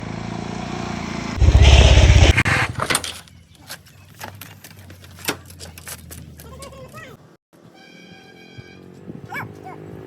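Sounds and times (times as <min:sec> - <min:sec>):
engine pulsing loudly: 0:00.0 - 0:02.8.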